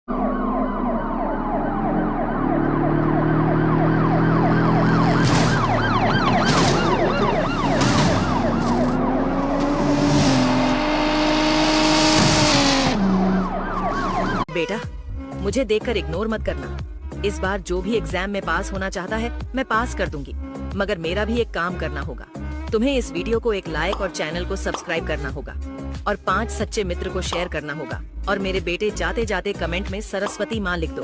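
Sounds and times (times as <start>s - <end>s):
siren wailing: 0.1s - 11.8s, 12.6s - 14.5s.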